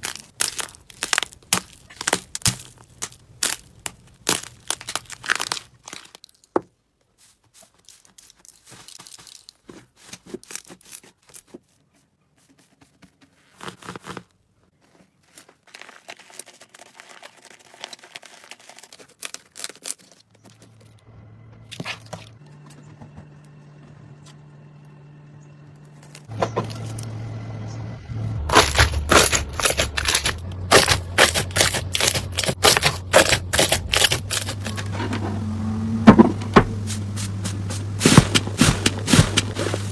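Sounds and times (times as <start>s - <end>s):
steady low hum: 21.0s - 39.9s.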